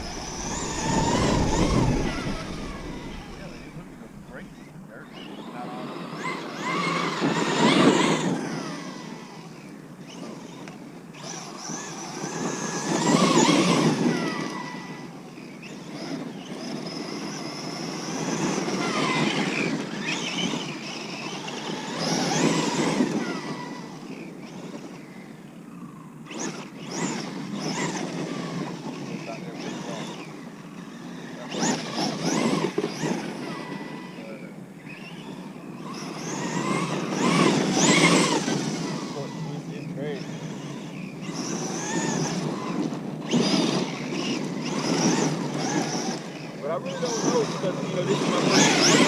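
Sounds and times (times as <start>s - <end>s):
tyre noise over ground: 0.0s - 4.8s
electric motor whining: 0.0s - 49.0s.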